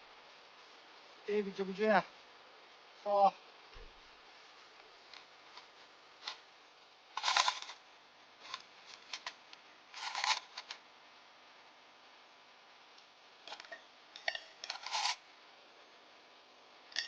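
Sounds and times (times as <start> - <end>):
rustling: 3.8 - 6.5, 7.1 - 7.8, 8.4 - 10.8.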